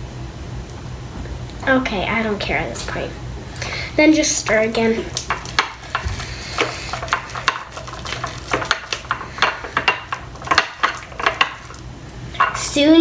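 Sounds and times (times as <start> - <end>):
spoon scraping bowl: 4.4 - 11.8.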